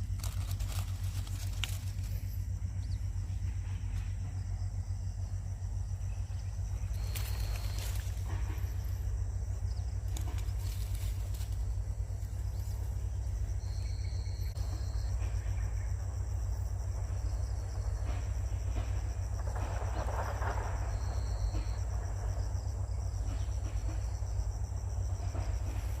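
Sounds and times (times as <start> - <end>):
insect chorus: 0.0 - 26.0
low rumble: 0.0 - 26.0.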